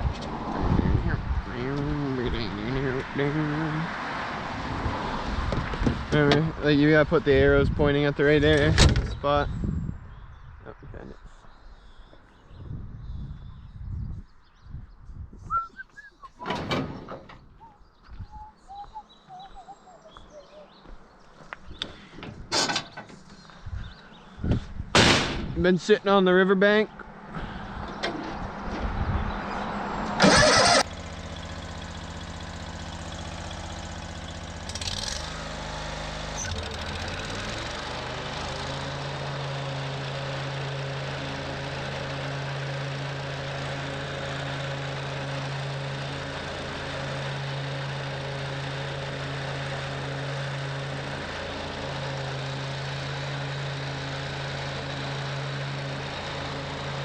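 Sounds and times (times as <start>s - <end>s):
mower engine starting and running: 27.2s - 57.0s.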